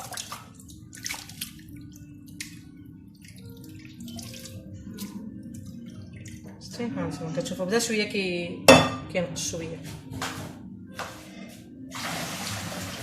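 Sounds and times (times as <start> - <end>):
water splashing in a bowl: 0.0 - 6.6.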